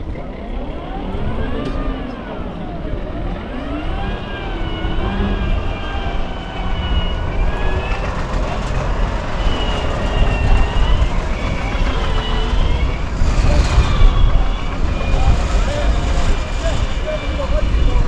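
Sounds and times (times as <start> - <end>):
electric truck whine: 0.0 - 18.0
heavy rumble over rough ground: 0.0 - 18.0.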